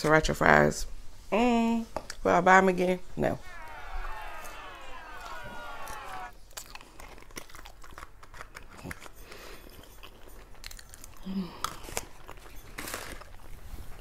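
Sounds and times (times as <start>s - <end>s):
chewing and biting fries: 6.5s - 14.0s.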